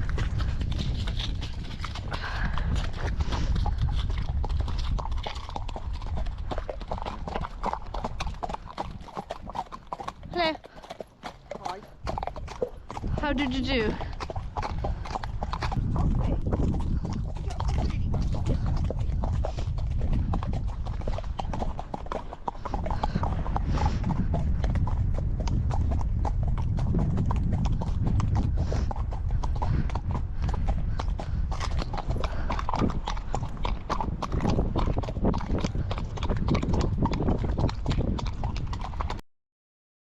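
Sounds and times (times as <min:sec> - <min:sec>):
horse hoofbeats clip-clopping: 0:00.0 - 0:39.2
wind buffeting microphone: 0:00.0 - 0:39.2.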